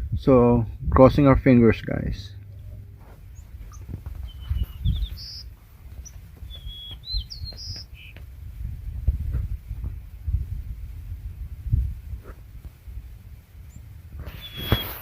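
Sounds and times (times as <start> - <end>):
low irregular thuds: 2.3 - 10.6
small bird singing: 2.4 - 8.2, 13.7 - 15.0.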